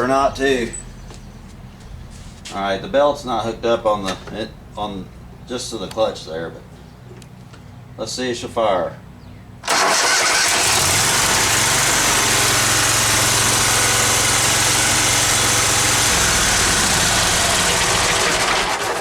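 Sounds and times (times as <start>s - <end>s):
mower engine cranking and running: 9.6s - 19.0s.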